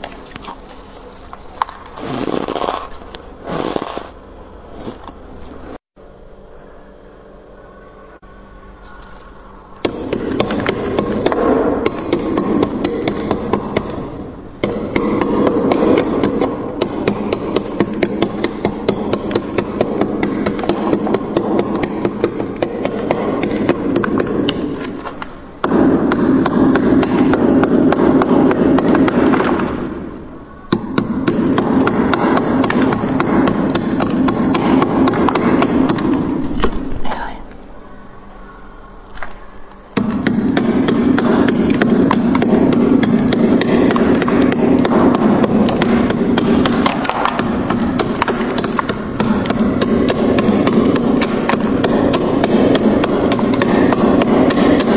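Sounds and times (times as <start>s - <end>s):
frost scraping in freezer: 0.0s - 5.8s.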